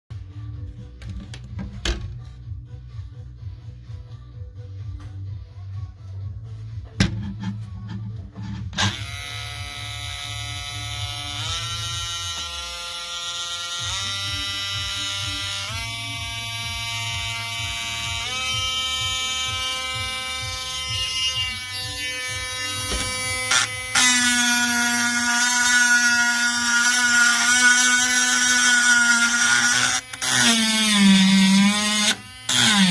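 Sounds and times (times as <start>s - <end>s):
rotary tool motor whining: 8.4s - 32.9s.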